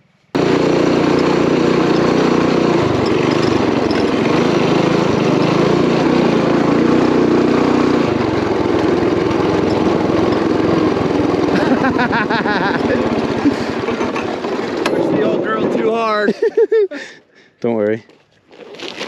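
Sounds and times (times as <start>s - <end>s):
mini bike engine running: 0.4s - 16.3s
rattle: 3.0s - 4.3s.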